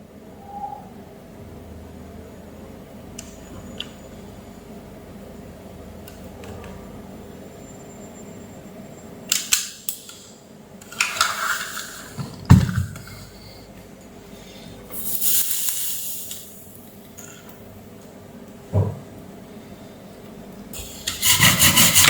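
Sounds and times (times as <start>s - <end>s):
heavy knock: 18.7s - 19.1s.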